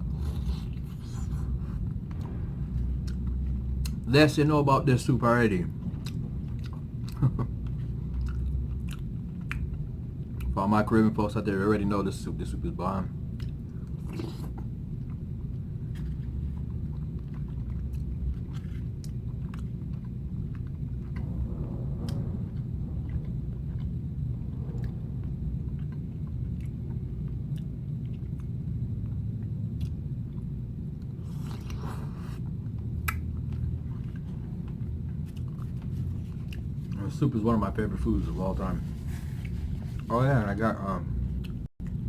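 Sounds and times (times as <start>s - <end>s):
steady low rumble: 0.0s - 42.0s
person chewing: 5.8s - 10.6s, 13.3s - 37.0s.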